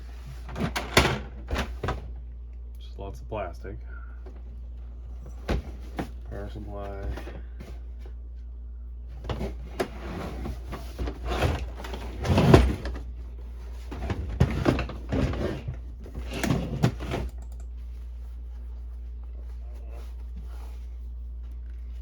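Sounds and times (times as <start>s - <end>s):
dehumidifier humming: 0.0s - 22.0s
plastic parts knocking and rattling: 13.8s - 17.4s.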